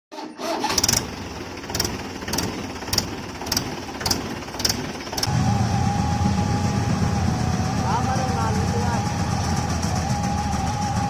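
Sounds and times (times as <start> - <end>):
tractor engine running: 0.4 - 11.0
sharp clicks: 1.7 - 5.3.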